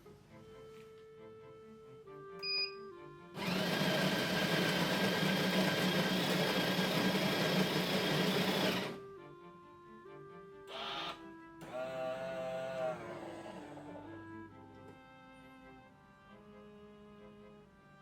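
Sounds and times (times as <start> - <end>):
coffee grinder grinding beans: 3.4 - 9.0, 11.6 - 13.2.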